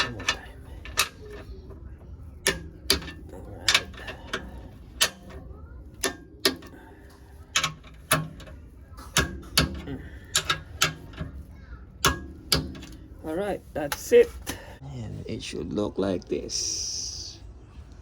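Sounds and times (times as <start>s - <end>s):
wrench clicking: 0.0s - 1.5s, 2.4s - 13.2s.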